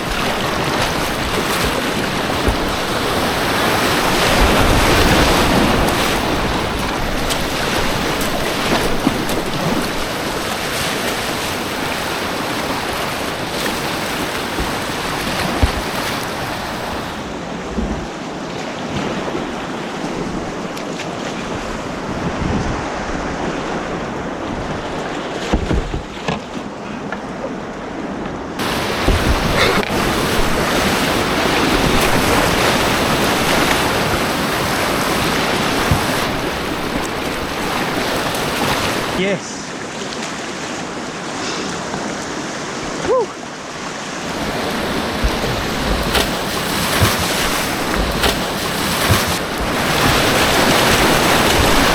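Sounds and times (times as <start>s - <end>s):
rushing white water: 0.0s - 26.3s, 28.4s - 51.9s
wind on microphone: 21.4s - 26.0s
low knocks: 44.4s - 51.9s.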